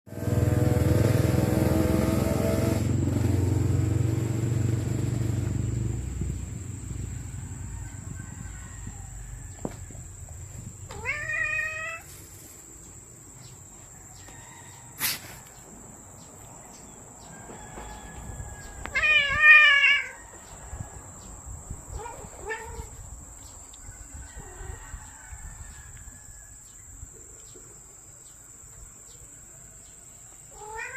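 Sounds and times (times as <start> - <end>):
cat meowing: 10.9 - 12.1, 18.9 - 20.2, 21.9 - 23.0, 30.5 - 30.9.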